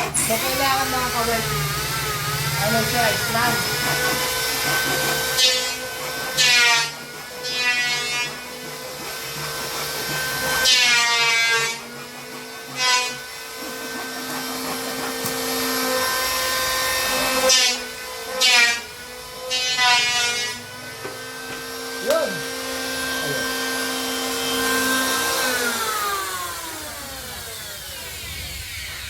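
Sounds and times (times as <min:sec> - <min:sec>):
power saw cutting plywood: 0:00.0 - 0:29.0.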